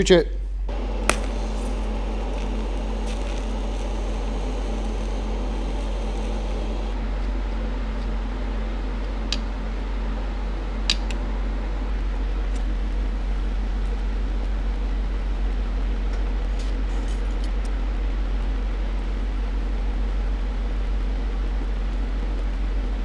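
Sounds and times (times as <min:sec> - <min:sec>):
mechanical hum: 0:00.0 - 0:23.0.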